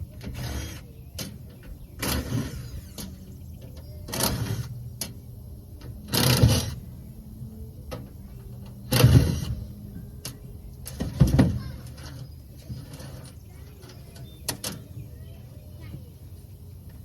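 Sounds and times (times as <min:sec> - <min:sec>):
small power tool motor: 0:00.3 - 0:00.9.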